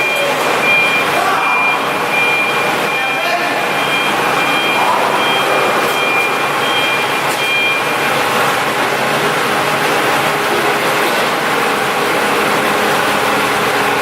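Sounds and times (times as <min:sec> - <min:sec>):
high electronic beeps: 0:00.0 - 0:08.1
diesel generator running: 0:00.0 - 0:14.0.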